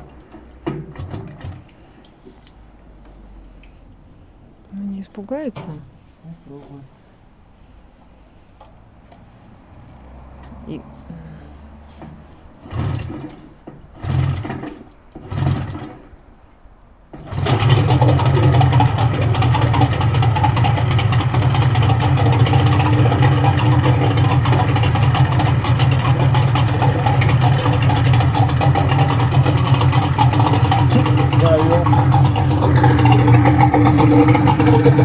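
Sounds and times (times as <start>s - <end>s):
outboard motor pull-start bursts: 0.0s - 2.4s, 11.5s - 35.0s
outboard motor running: 0.0s - 2.5s, 11.2s - 16.4s, 17.1s - 35.0s.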